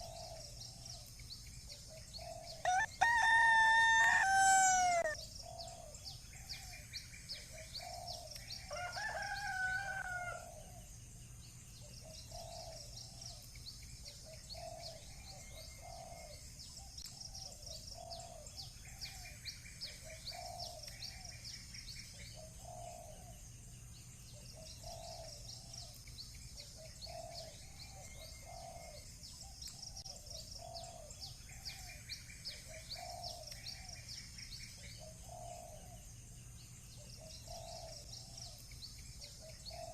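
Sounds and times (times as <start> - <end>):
low repeated bird call: 0.0 - 10.8, 24.3 - 36.1
small birds chirping: 0.0 - 39.9
rooster crowing: 2.6 - 5.2, 8.7 - 10.6.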